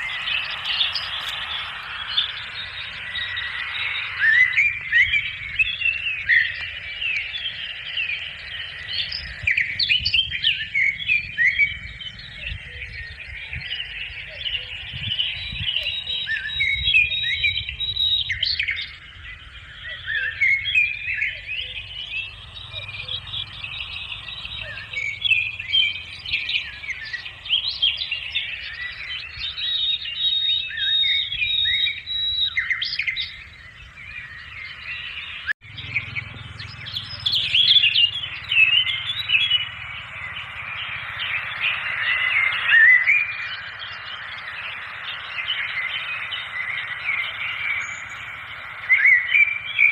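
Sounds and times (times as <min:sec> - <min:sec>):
birds chirping: 0:00.0 - 0:49.9
low steady rumble: 0:18.8 - 0:29.6.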